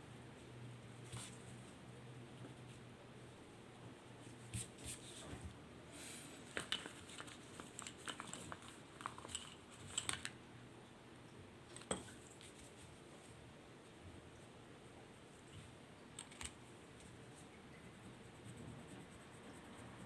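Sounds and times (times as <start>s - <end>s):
low room hum: 0.0s - 20.0s
paper rustle: 6.4s - 10.3s.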